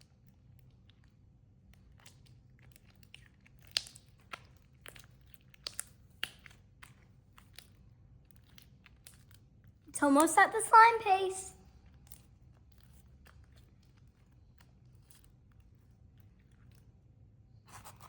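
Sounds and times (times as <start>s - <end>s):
sticky slime clicks and pops: 3.6s - 7.7s.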